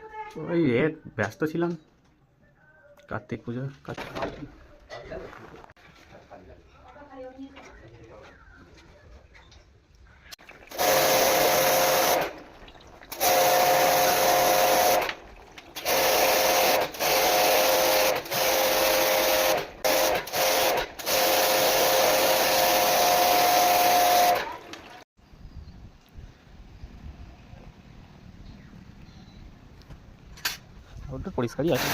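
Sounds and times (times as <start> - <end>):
pump motor hum: 10.4 - 25.0
high-pressure water spray hissing: 10.7 - 12.4, 13.1 - 15.2, 15.8 - 24.5.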